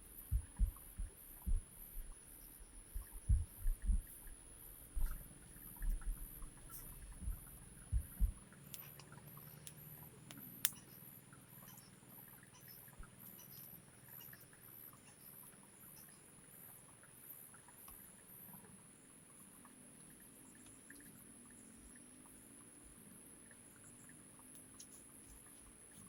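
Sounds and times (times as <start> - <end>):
insects chirping: 0.0 - 26.0
small clicks: 8.7 - 11.0.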